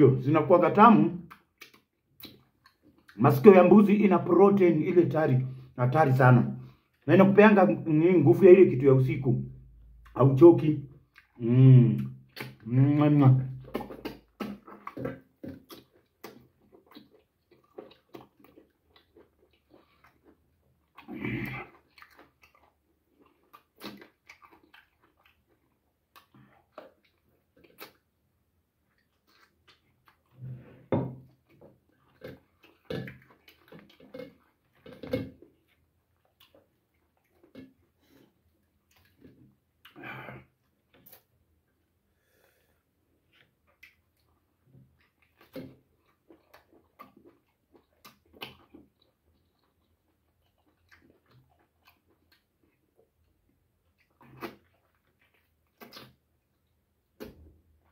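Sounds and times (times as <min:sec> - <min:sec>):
man biting and chewing meat: 0:01.2 - 0:03.2, 0:09.4 - 0:10.2, 0:10.9 - 0:57.9
meat tearing: 0:13.6 - 0:25.5.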